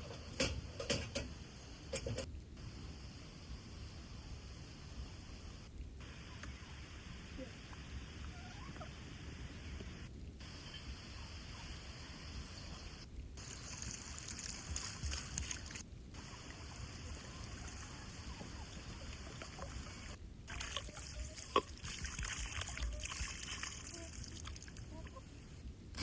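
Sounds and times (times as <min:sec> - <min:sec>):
water trickling: 0:13.4 - 0:25.2.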